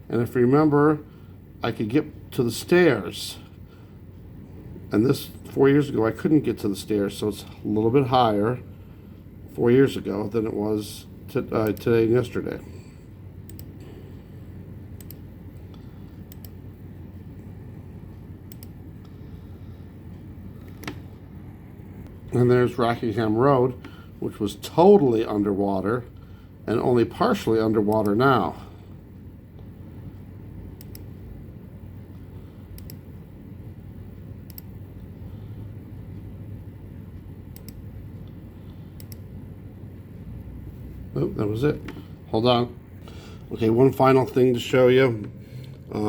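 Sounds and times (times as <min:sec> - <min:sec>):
steady low hum: 0:00.0 - 0:46.0
computer mouse clicks: 0:13.5 - 0:13.8, 0:15.0 - 0:16.6, 0:18.5 - 0:19.2, 0:20.6 - 0:21.2, 0:30.8 - 0:31.1, 0:32.8 - 0:33.0, 0:34.5 - 0:34.8, 0:37.5 - 0:38.4, 0:39.0 - 0:39.2.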